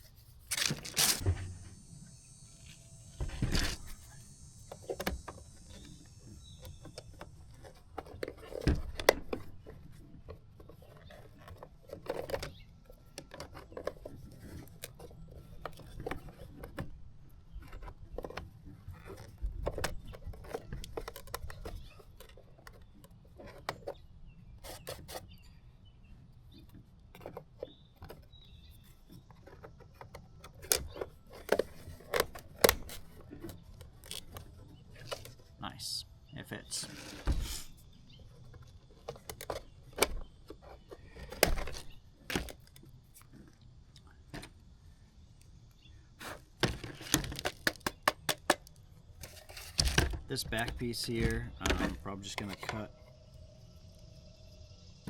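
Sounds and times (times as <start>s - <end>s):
plastic scratching on sandpaper: 0.0s - 25.6s, 36.6s - 43.5s
plastic parts clicking: 2.7s - 24.0s, 29.3s - 35.5s, 38.4s - 44.5s, 46.6s - 52.9s.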